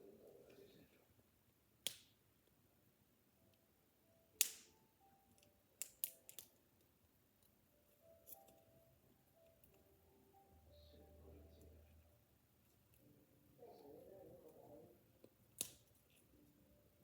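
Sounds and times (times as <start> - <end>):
faint music: 0.0 - 17.0
plastic package clicking and snapping: 5.8 - 6.6, 15.5 - 16.0.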